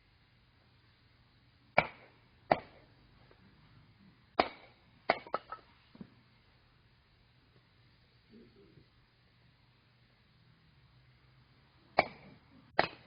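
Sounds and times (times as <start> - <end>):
axe chopping firewood: 1.8 - 2.8, 4.4 - 5.6, 12.0 - 13.0.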